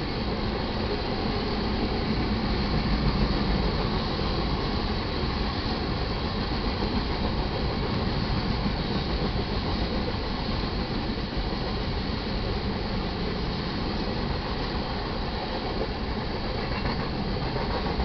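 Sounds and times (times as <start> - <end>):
freight train wheels on rails: 0.0 - 18.0.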